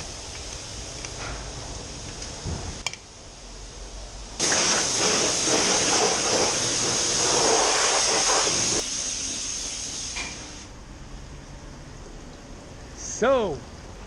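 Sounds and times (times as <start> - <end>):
pressure washer spraying water: 4.4 - 10.7.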